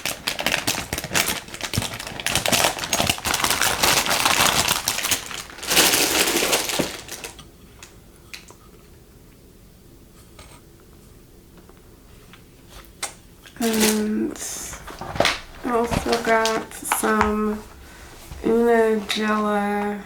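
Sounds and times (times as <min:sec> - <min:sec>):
plastic packaging crinkling: 0:00.0 - 0:08.5, 0:13.5 - 0:20.0.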